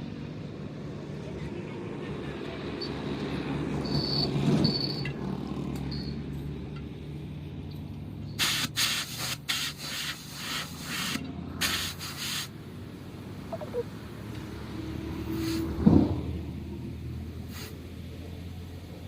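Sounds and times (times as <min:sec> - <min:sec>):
hissing rasping bursts: 0:08.4 - 0:12.6.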